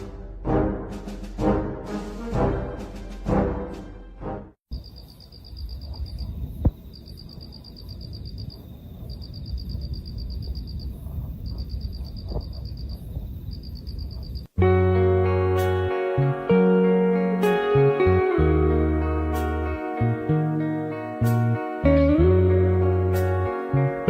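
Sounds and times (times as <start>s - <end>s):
music: 0.0s - 4.6s, 14.6s - 24.0s
insects chirping in trills: 4.7s - 14.5s.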